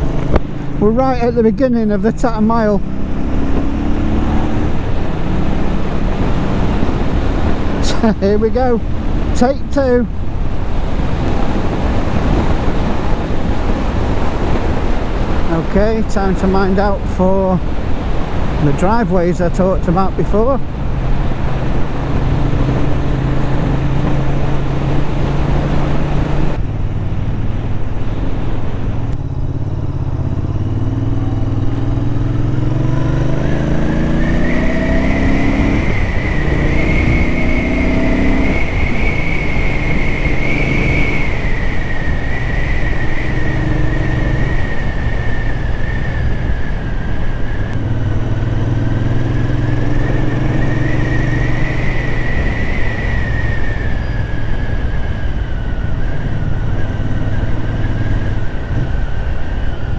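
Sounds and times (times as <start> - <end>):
motorcycle engine accelerating: 0.0 - 59.9
wind rush: 0.0 - 59.9
high steady whine: 32.6 - 49.2.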